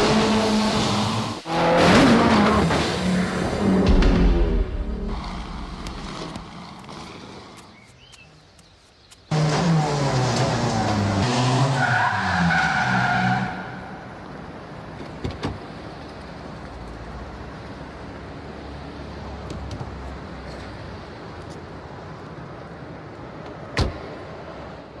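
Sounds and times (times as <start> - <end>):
car engine revving: 0.0 - 7.2, 9.3 - 11.8.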